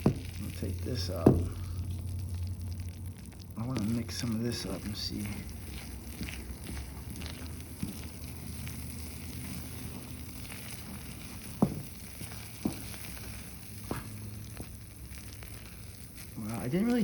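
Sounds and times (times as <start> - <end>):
utensil knocking container: 0.0 - 1.7
faint sizzling bubble: 0.0 - 17.0
molten candy being stirred: 0.0 - 17.0.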